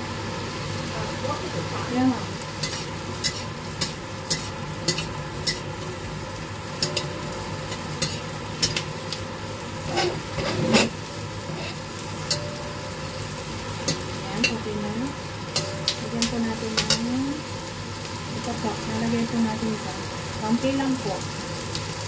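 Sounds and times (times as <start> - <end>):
onion sizzling in oil: 0.0 - 22.0
metal ladle scraping wok: 9.8 - 12.4.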